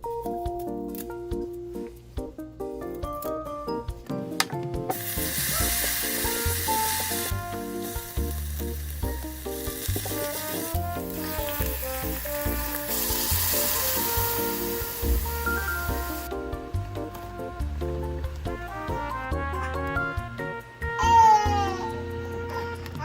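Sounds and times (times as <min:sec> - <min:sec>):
background music: 0:00.0 - 0:23.0
food sizzling in a pan: 0:04.9 - 0:16.4.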